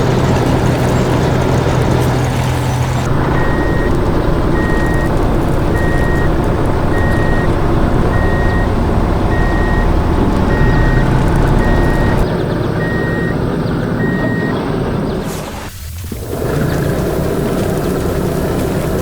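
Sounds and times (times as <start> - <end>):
engine rumble: 0.0 - 19.0
reversing alarm beeping: 3.1 - 14.6.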